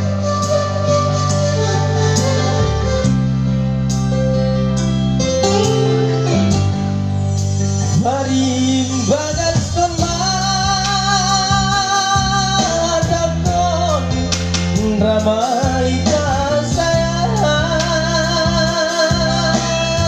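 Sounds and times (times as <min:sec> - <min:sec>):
backing band: 0:00.0 - 0:20.0
person singing pop song: 0:07.8 - 0:20.0.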